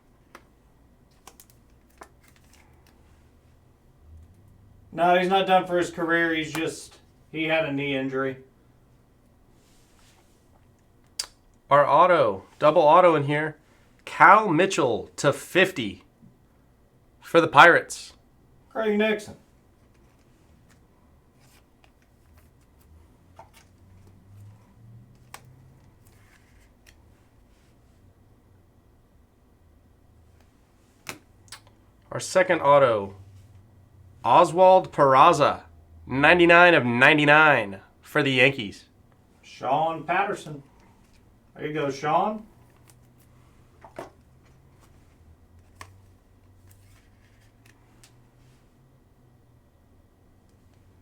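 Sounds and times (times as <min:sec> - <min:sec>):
steady low hum: 0:00.0 - 0:51.0
rustling of cards: 0:00.2 - 0:03.5, 0:19.3 - 0:28.0, 0:40.2 - 0:48.8.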